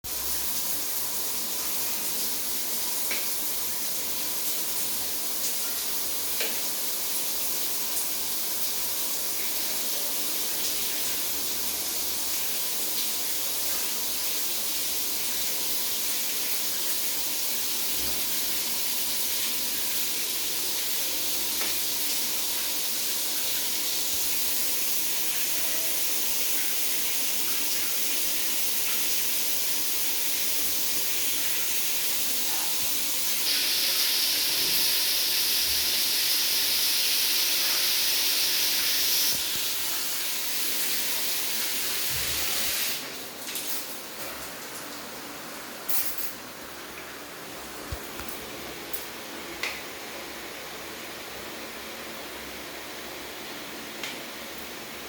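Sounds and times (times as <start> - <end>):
shower water spray hissing: 0.1 - 44.1.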